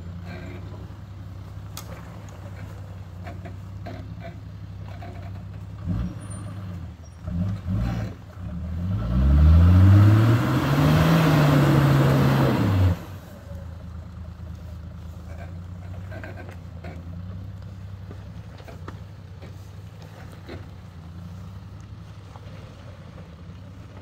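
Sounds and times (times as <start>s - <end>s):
vehicle engine revving: 1.8s - 13.6s.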